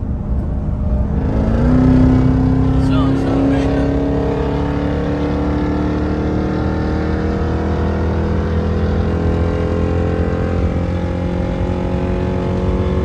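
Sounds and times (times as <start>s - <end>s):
car engine pulling hard: 0.0s - 13.0s.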